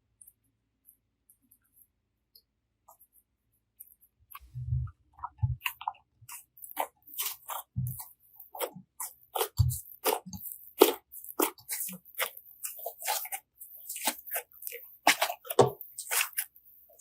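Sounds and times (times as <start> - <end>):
slime squished by hand: 4.4 - 17.0.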